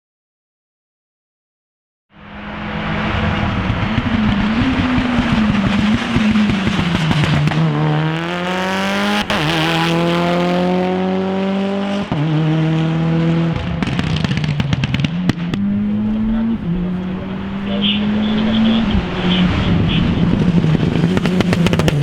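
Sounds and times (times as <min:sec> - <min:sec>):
exhaust crackles: 0:02.2 - 0:07.7, 0:13.6 - 0:22.0
car engine accelerating hard: 0:02.2 - 0:22.0.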